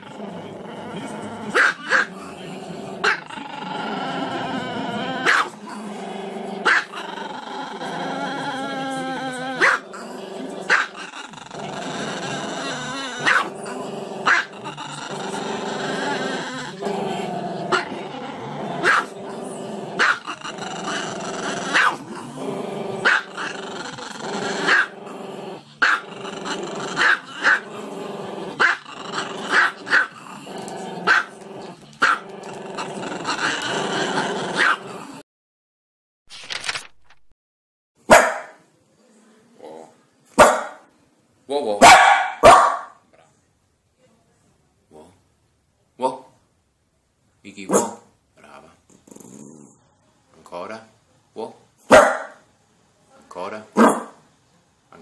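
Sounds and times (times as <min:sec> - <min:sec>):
dog growling: 0:00.0 - 0:35.2, 0:48.9 - 0:49.8
dog barking: 0:01.6 - 0:02.1, 0:05.2 - 0:05.5, 0:06.7 - 0:07.0, 0:09.6 - 0:09.8, 0:10.7 - 0:11.0, 0:13.2 - 0:13.5, 0:14.3 - 0:14.5, 0:18.8 - 0:19.1, 0:20.0 - 0:20.2, 0:21.7 - 0:22.0, 0:23.0 - 0:23.3, 0:24.7 - 0:24.9, 0:25.8 - 0:26.0, 0:27.0 - 0:27.6, 0:29.5 - 0:30.1, 0:31.1 - 0:31.3, 0:34.6 - 0:34.8, 0:38.1 - 0:38.6, 0:40.4 - 0:40.9, 0:41.8 - 0:43.0, 0:47.7 - 0:48.1, 0:51.9 - 0:52.4, 0:53.8 - 0:54.2.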